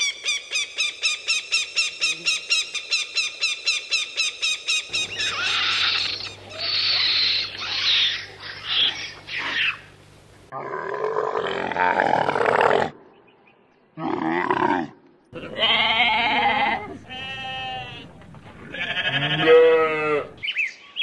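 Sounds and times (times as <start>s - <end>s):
bird of prey shrill calls: 4.4s - 9.8s
monkey screeching: 4.9s - 9.9s
steady low hum: 4.9s - 10.5s, 15.3s - 20.4s.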